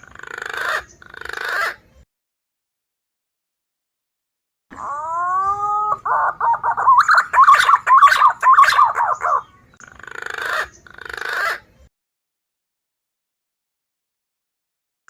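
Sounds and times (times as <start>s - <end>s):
recorded pigeon call: 0.0s - 2.0s, 4.7s - 11.8s.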